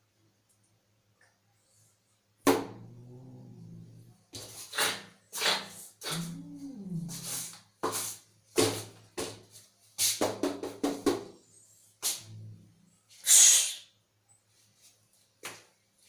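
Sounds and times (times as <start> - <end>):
faint low hum: 0.0 - 4.7, 5.8 - 7.8, 11.3 - 13.2
cat hissing and spitting: 2.8 - 8.2, 13.2 - 13.9.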